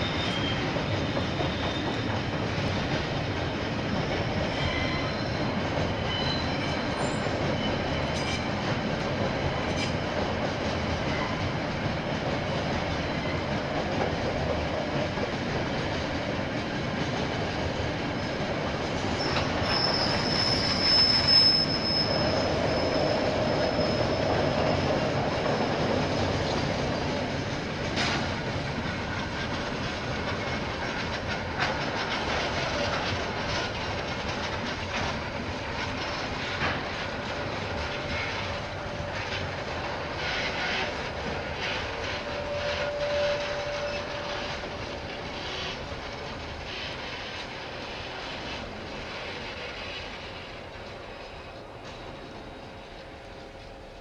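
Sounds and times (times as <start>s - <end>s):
wheel squeal: 0.0s - 2.2s, 4.0s - 8.6s, 18.9s - 27.1s, 40.1s - 45.9s
train wagons rolling on rails: 0.0s - 54.0s.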